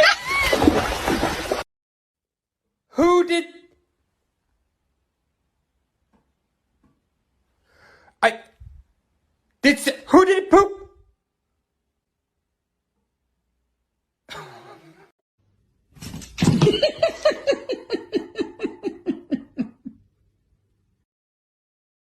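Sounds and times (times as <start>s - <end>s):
person laughing: 14.3s - 15.1s, 16.4s - 20.0s.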